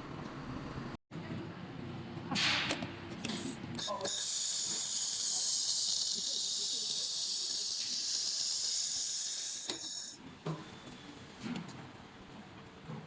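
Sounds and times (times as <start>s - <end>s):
laser welder hissing: 3.8s - 10.2s.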